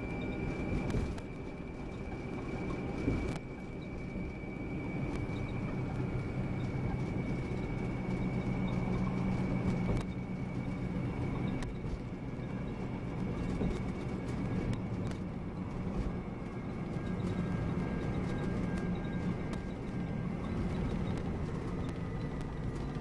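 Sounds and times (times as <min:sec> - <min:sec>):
bus engine running: 0:00.0 - 0:23.0
road noise: 0:00.0 - 0:23.0.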